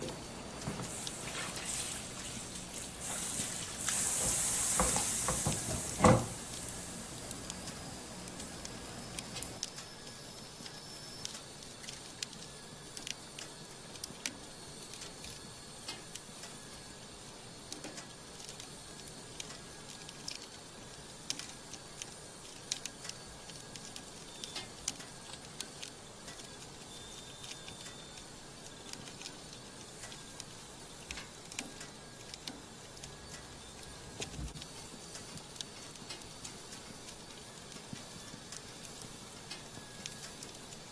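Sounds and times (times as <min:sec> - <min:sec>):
loud hiss: 0:00.0 - 0:09.6
wood fire crackling: 0:00.0 - 0:40.9.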